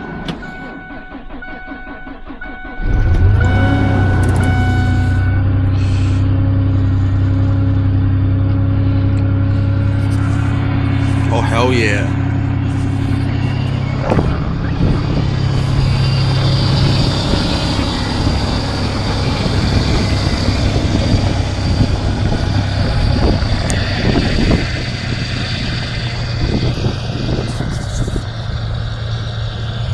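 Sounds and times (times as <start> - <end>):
truck engine idling: 0.0 - 29.9.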